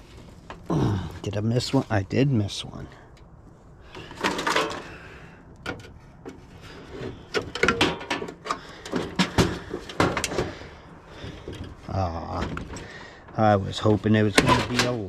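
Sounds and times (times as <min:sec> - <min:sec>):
metal parts clanking: 0:03.9 - 0:11.8, 0:14.3 - 0:15.0
metal scraping and sliding: 0:03.9 - 0:15.0.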